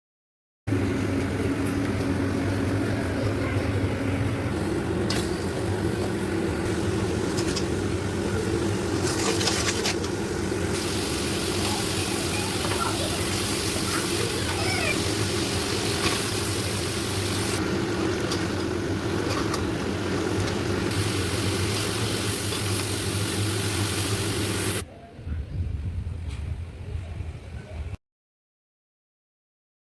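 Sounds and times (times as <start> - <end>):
low mechanical hum: 0.7 - 28.0
hiss: 10.7 - 17.6, 20.9 - 24.8.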